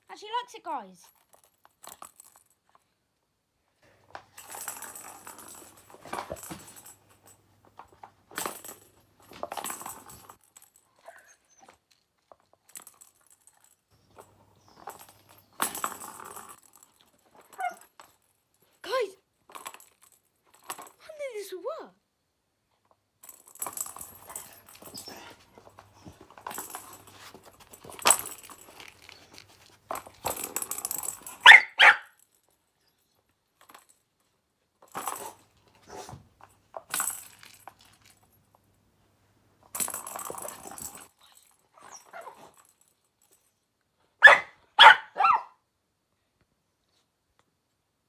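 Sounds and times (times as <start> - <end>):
toy jingling and rattling: 4.3 - 11.6, 12.6 - 21.1, 23.2 - 32.6, 39.7 - 43.6
dog barking: 31.4 - 32.1, 44.2 - 45.6.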